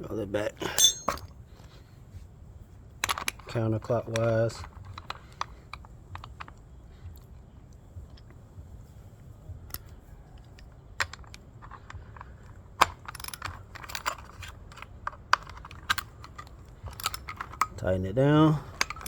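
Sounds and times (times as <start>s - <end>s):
metal clicks and clinks: 0.6s - 1.3s, 12.8s - 17.8s, 18.7s - 19.0s.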